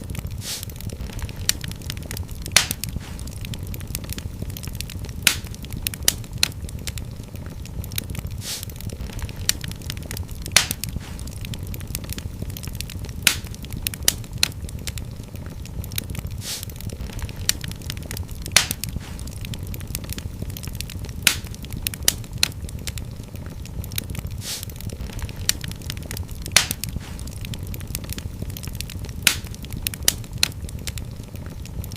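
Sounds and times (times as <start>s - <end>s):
fire rumbling in fireplace: 0.0s - 31.9s
wood fire crackles and pops: 0.0s - 31.9s
brief hiss: 0.4s - 0.7s, 8.4s - 8.7s, 16.4s - 16.7s, 24.4s - 24.7s.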